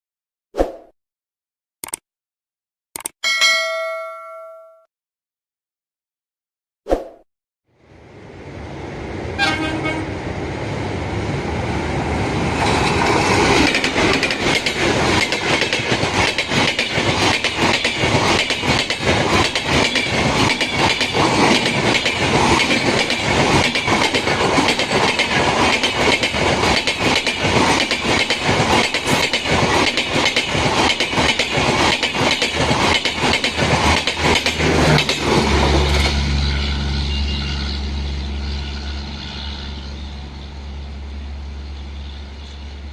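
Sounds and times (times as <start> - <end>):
train horn toot: 9.4 - 10.2, 36.3 - 40.0
train wheels clattering over rails: 12.6 - 36.2.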